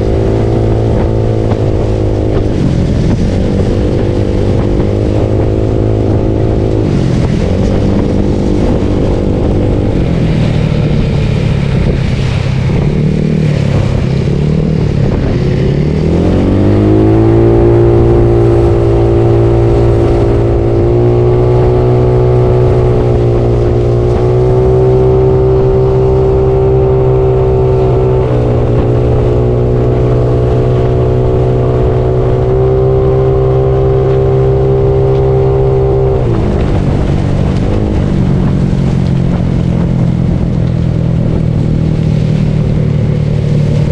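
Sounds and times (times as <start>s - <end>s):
noisy rush of wind: 0.0s - 43.9s
scooter engine while riding: 0.0s - 43.9s.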